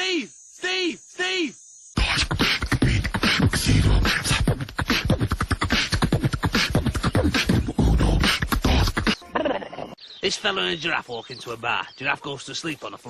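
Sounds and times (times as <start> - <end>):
beatbox vocal percussion: 2.0 - 9.2.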